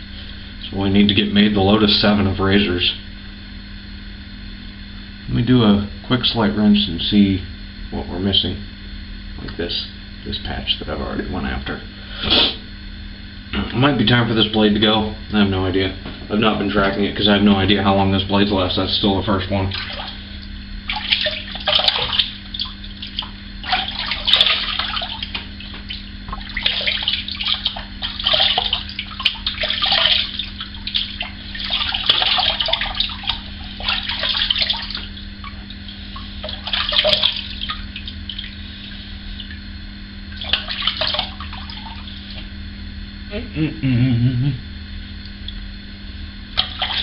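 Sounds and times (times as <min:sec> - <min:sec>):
water running at a sink: 0:16.6 - 0:39.6, 0:40.3 - 0:42.5, 0:46.6 - 0:47.0
water splashing: 0:19.6 - 0:39.6, 0:40.3 - 0:42.5, 0:46.6 - 0:47.0.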